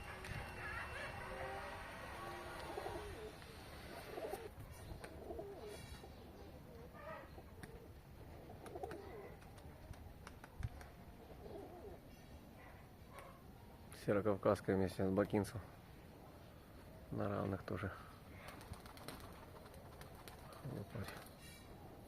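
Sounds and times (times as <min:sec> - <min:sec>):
pigeons cooing: 0:00.0 - 0:09.7, 0:11.1 - 0:12.2.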